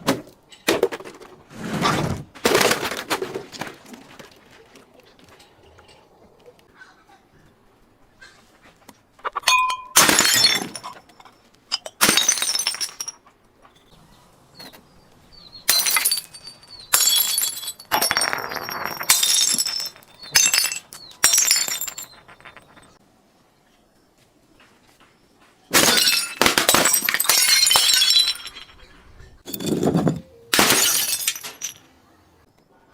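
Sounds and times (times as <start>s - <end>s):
glass bottles smashing: 9.4s - 13.2s, 15.6s - 23.0s, 25.7s - 31.9s
glass pieces tinkling: 9.5s - 13.2s, 15.7s - 23.0s, 25.8s - 31.9s.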